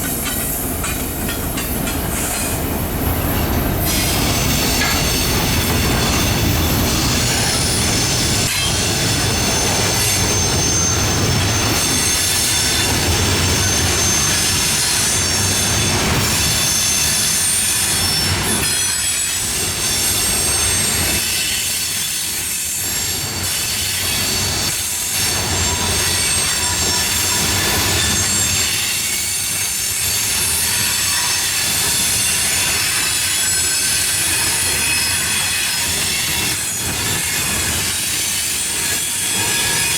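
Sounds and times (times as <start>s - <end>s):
train cars rumbling: 0.0s - 21.2s
train wheel squeal: 0.0s - 39.9s.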